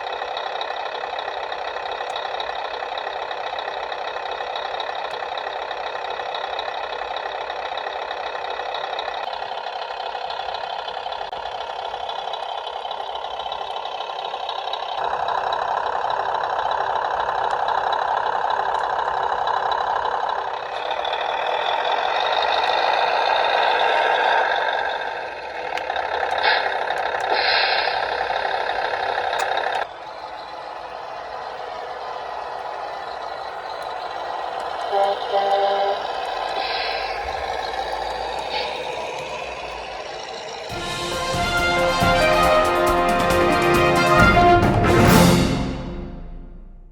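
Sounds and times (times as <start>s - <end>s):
simulated truck engine through speaker: 0.0s - 46.9s
air-brake hisses: 25.5s - 29.8s, 34.6s - 40.8s.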